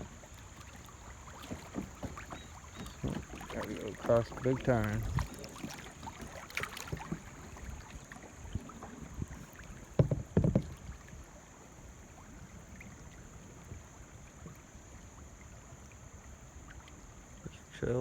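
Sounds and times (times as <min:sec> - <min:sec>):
paddle knocks: 0:00.0 - 0:11.3
paddle strokes in water: 0:00.0 - 0:18.0.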